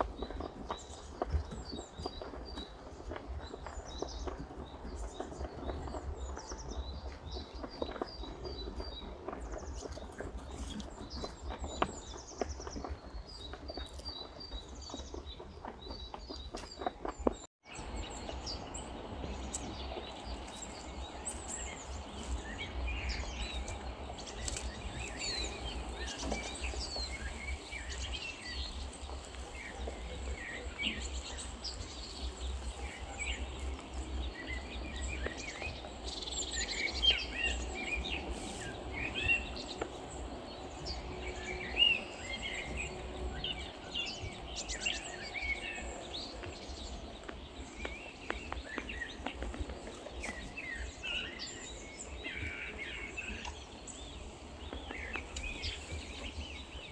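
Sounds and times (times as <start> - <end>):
light clicks and patter: 0.0 - 56.4
small birds chirping: 0.0 - 56.9
low outdoor rumble: 17.1 - 56.9.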